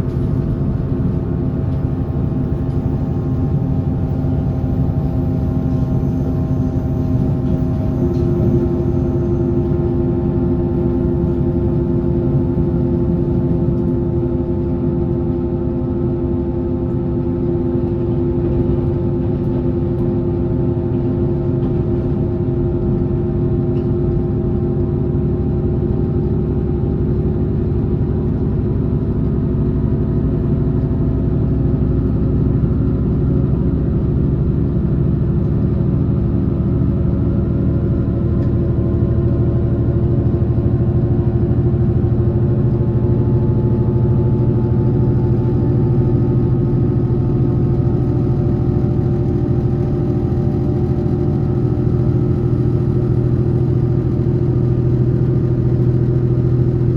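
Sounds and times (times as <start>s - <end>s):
train motor hum: 0.0s - 23.2s
wheel-on-rail rumble: 0.0s - 56.9s.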